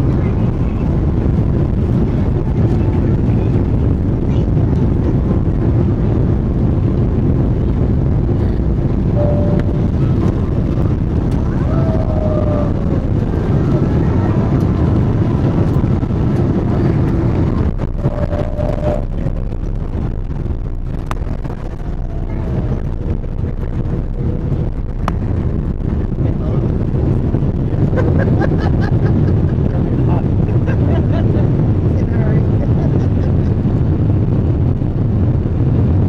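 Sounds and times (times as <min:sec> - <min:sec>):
jet engine rumble: 0:00.0 - 0:36.0
rushing air: 0:00.0 - 0:36.0
faint pitch-sliding whines: 0:09.1 - 0:10.5.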